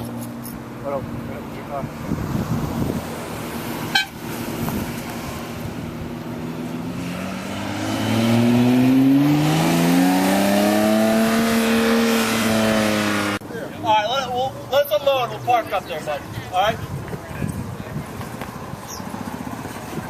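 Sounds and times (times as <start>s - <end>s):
car engine revving: 1.3s - 13.4s.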